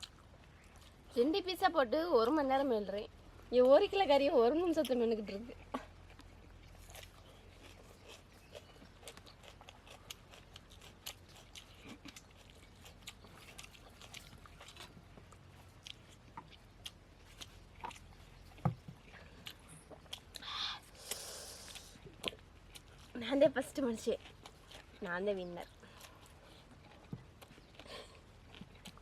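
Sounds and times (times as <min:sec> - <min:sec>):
chewing with mouth smacks: 0:00.0 - 0:01.6, 0:04.6 - 0:29.0.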